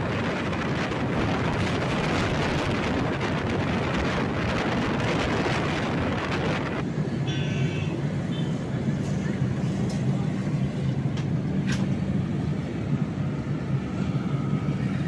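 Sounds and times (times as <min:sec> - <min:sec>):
wind on microphone: 0:00.0 - 0:06.9
moving train running noise: 0:00.0 - 0:15.0.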